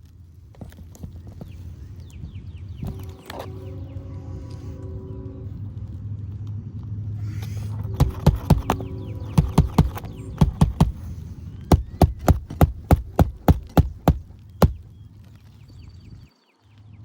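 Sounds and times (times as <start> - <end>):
steady low hum: 1.2 - 15.2
hammer driving nails: 8.0 - 11.0, 11.7 - 14.8.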